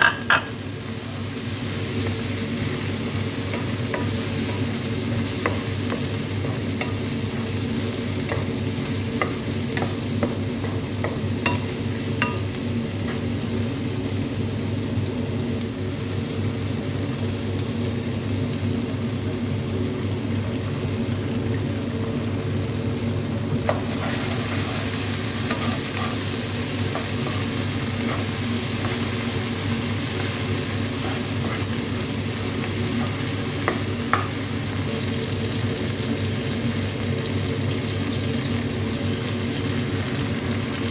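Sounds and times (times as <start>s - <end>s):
vegetables sizzling in a pan: 0.0s - 40.9s
spatula stirring and scraping: 23.7s - 34.3s.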